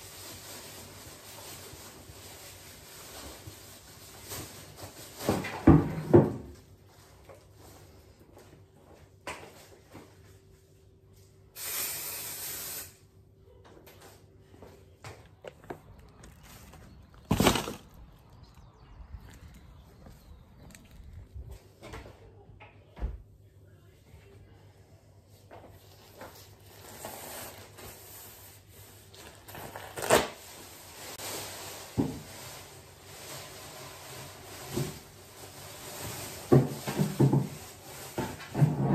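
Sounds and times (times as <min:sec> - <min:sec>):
cleaning spray hissing: 0:11.6 - 0:13.0
things being handled: 0:13.7 - 0:22.2
rustling: 0:14.0 - 0:21.8
household items clattering: 0:15.4 - 0:18.6.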